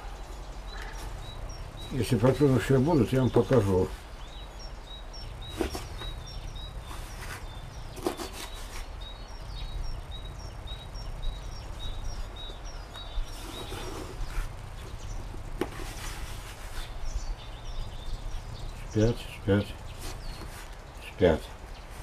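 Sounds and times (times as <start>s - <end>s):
small bird chirping: 0.0s - 22.0s.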